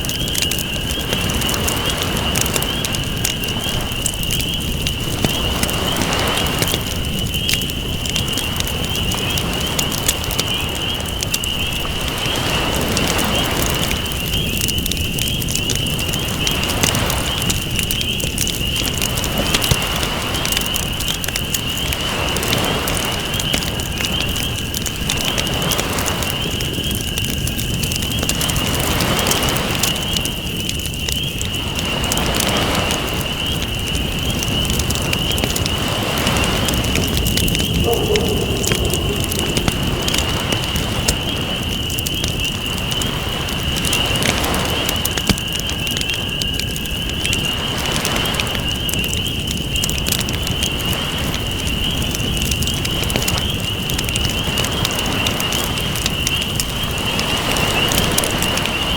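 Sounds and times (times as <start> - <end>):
campfire crackling and popping: 0.0 - 58.9
ocean waves: 35.6 - 42.0.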